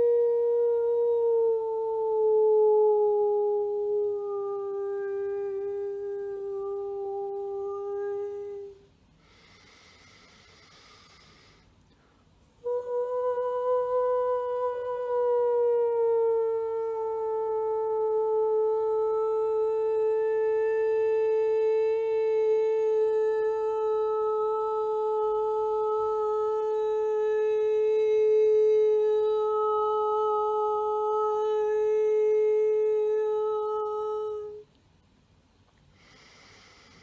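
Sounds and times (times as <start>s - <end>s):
woman overtone singing: 12.6s - 34.7s.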